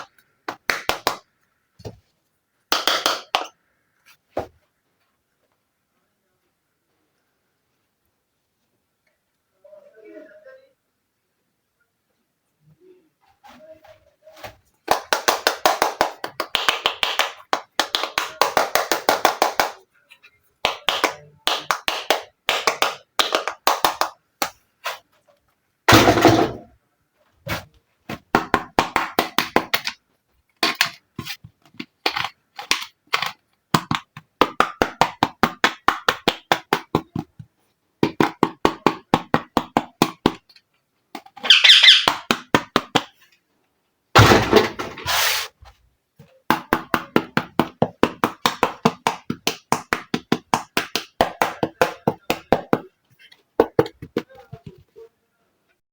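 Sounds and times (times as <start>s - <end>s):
loud plastic clatter: 44.2s - 45.1s.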